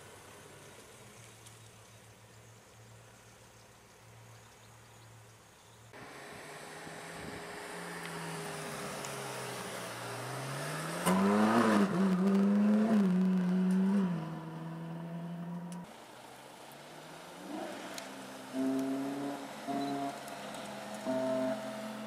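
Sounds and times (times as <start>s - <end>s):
car engine revving: 6.0s - 22.0s.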